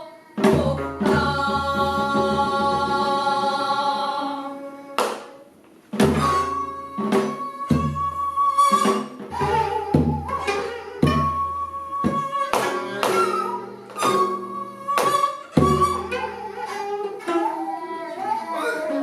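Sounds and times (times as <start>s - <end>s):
held flute line: 6.1s - 19.0s.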